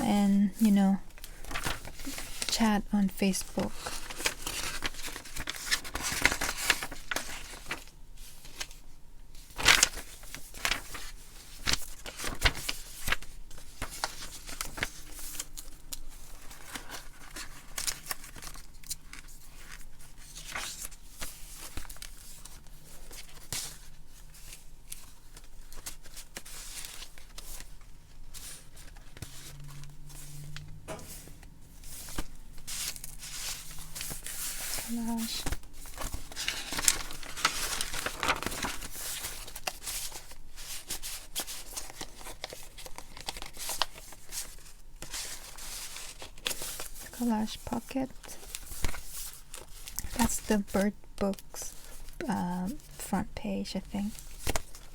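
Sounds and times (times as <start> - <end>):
stiff paper rustling: 0.6 - 8.8, 9.4 - 53.2, 54.0 - 54.9
sharp paper flicks and taps: 34.6 - 47.0.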